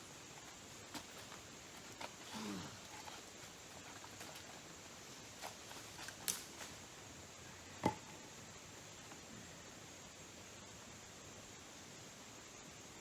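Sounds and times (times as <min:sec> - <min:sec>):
camp gear clicking and tapping: 0:00.4 - 0:06.7.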